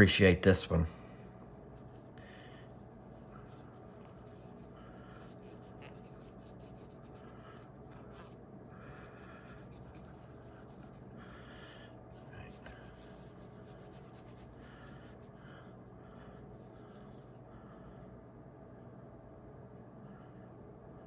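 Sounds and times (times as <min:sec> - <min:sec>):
steady low hum: 0:00.0 - 0:21.0
cloth rag rubbing wood: 0:02.8 - 0:08.4, 0:12.2 - 0:15.4.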